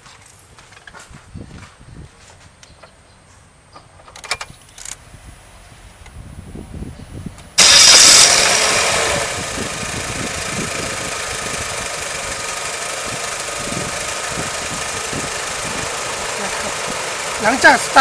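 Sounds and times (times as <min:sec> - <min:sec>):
car engine revving and idling: 0:07.6 - 0:18.0
starter cranking: 0:07.6 - 0:18.0.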